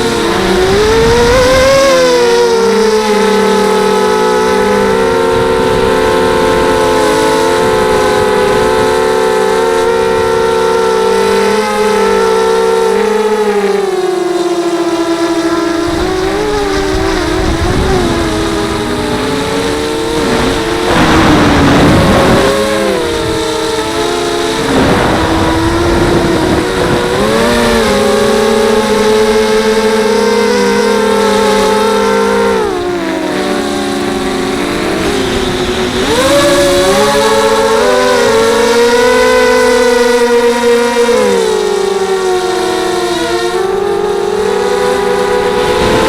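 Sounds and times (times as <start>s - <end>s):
quadcopter motors whining: 0.0s - 46.0s
propeller air rushing bursts: 14.8s - 39.2s.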